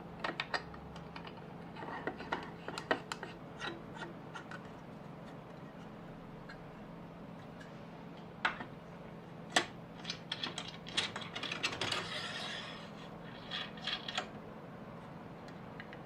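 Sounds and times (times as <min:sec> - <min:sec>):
faint steady hum: 0:00.0 - 0:16.0
scraping slide: 0:11.9 - 0:13.8.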